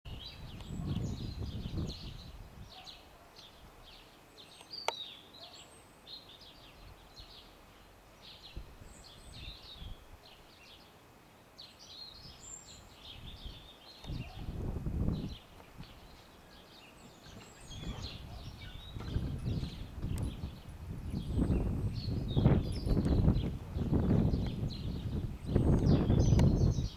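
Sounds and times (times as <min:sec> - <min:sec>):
low rumbling gusts: 0:00.1 - 0:02.8, 0:13.0 - 0:16.1, 0:17.5 - 0:26.9
songbirds chirping and singing: 0:00.1 - 0:26.9.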